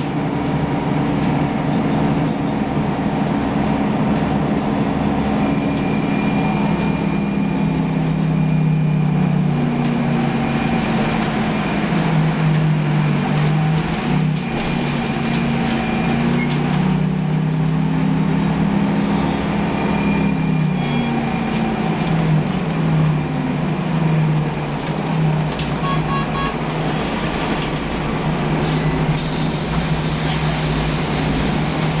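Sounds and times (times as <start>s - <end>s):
bus engine accelerating: 0.0s - 32.0s
short beeps: 25.8s - 26.6s.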